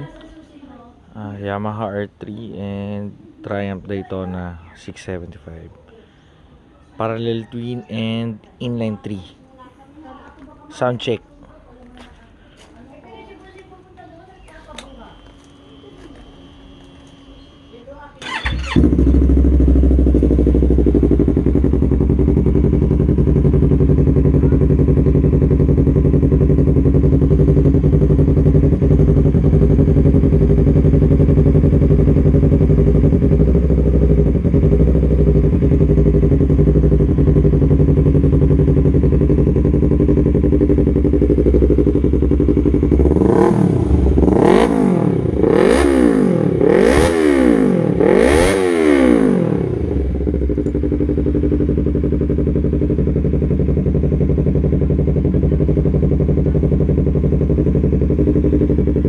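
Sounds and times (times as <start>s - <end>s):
motorcycle engine starting and idling: 12.6s - 59.0s
engine revving: 18.2s - 23.5s, 26.0s - 57.4s.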